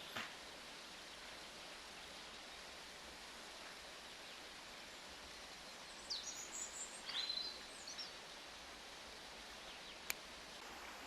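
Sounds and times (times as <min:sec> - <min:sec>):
steady outdoor hiss: 0:00.0 - 0:11.0
bird chirping: 0:03.4 - 0:08.5, 0:09.5 - 0:10.6.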